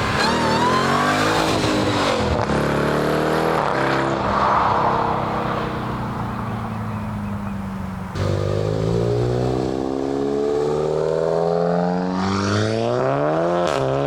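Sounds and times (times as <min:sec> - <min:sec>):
car accelerating hard past: 0:02.8 - 0:07.4.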